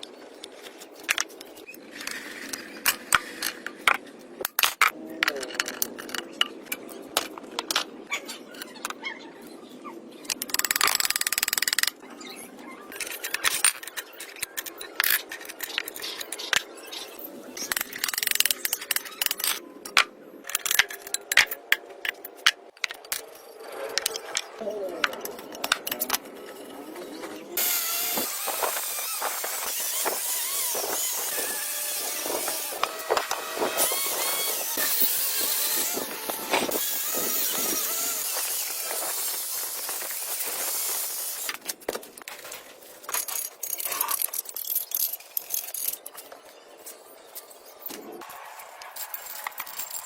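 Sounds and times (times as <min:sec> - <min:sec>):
power tool running loudly: 0:27.6 - 0:39.6
metallic clinks and knocks: 0:48.9 - 0:50.0.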